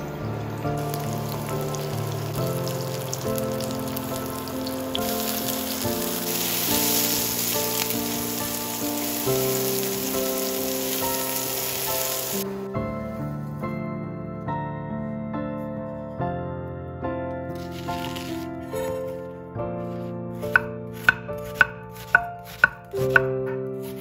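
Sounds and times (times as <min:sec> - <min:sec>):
background music: 0:00.0 - 0:24.0
mushrooms sizzling in frying pan: 0:00.8 - 0:12.4.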